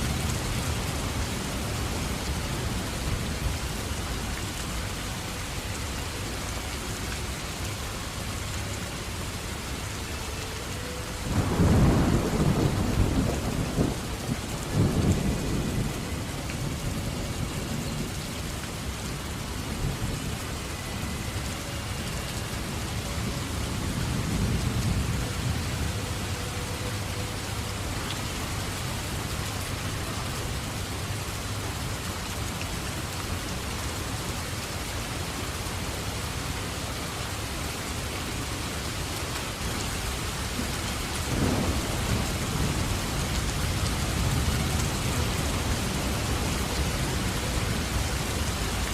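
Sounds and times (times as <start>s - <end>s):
steady rain falling: 0.0s - 48.9s
thunder rumbling: 11.2s - 18.6s, 40.4s - 46.8s.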